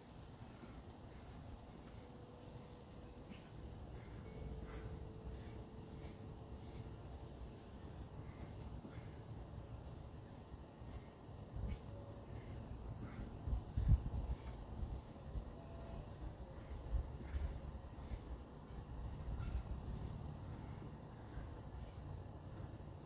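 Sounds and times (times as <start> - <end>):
bird chirping high: 5.9 - 7.4, 8.3 - 8.9, 12.3 - 12.8, 13.8 - 16.3.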